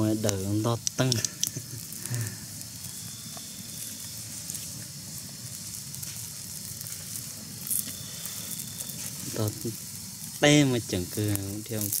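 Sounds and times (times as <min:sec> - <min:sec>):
sizzling hiss with crackling: 0:00.0 - 0:12.0.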